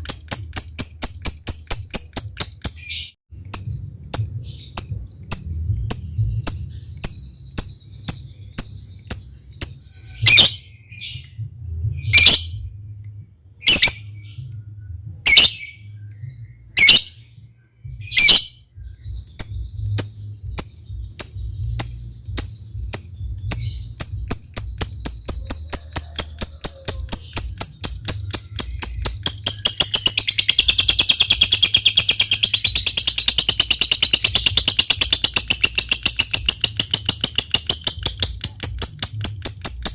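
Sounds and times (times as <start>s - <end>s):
bird chattering trill: 0.0s - 10.6s, 19.1s - 39.9s.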